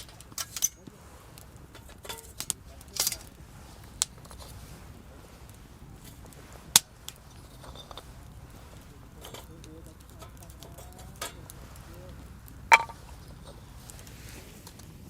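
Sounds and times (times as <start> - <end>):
low steady background noise: 0.0 - 15.0
rustle: 0.0 - 15.0.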